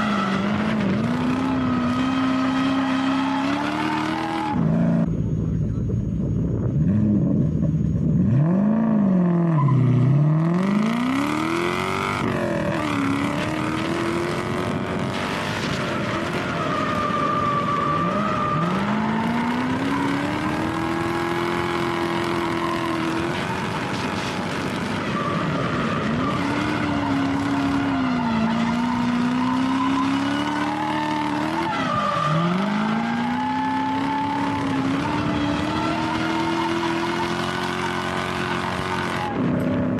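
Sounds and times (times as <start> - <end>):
tyres skidding: 0.0 - 5.1, 9.2 - 39.9
car engine revving hard: 10.3 - 15.4, 18.0 - 39.4.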